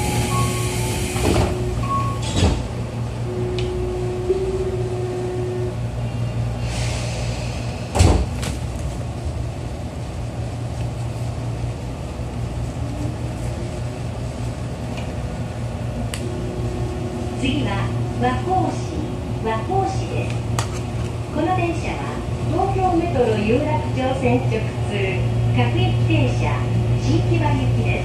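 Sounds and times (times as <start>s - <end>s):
train doors shutting thud: 0.0s - 2.8s, 7.7s - 8.8s.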